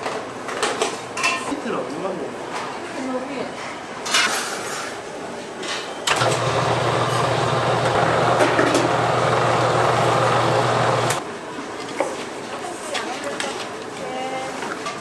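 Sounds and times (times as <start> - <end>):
motorised machine humming: 6.1 - 11.2.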